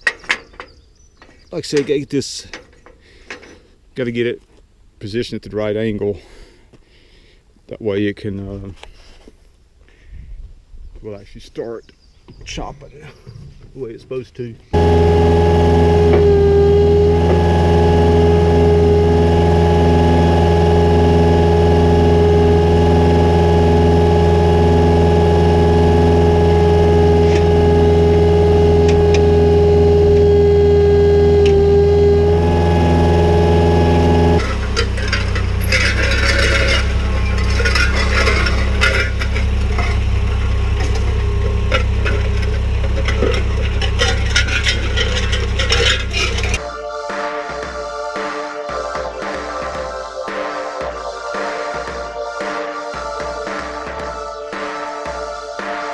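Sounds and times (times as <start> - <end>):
tractor engine running: 14.7 - 55.9
metal rattles: 34.3 - 46.6.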